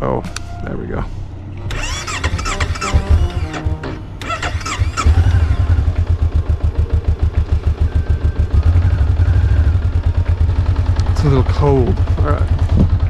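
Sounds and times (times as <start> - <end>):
motorcycle engine starting and idling: 1.6 - 13.0.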